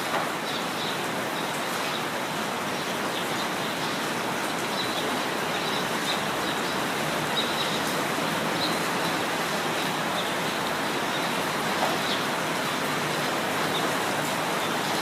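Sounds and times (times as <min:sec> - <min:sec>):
steady rain: 0:00.0 - 0:15.0
birds chirping: 0:02.7 - 0:12.4.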